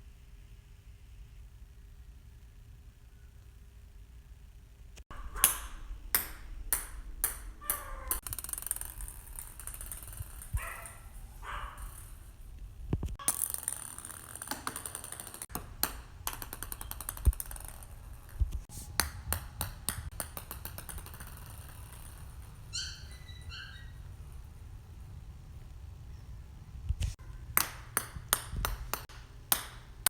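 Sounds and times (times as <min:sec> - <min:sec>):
small ball bouncing on floor: 0:05.0 - 0:22.8, 0:27.5 - 0:30.0.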